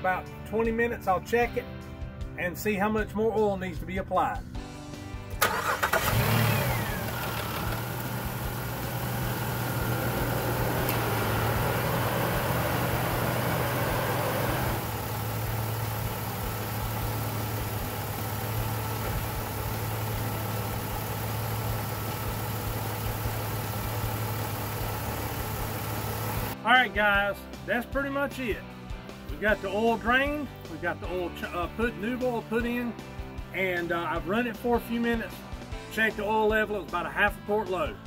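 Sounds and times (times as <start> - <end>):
car engine idling: 5.4 - 26.6.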